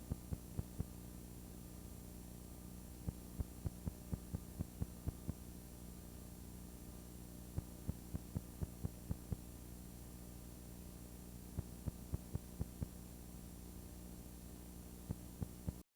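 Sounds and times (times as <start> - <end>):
electrical mains hum: 0.0 - 15.8.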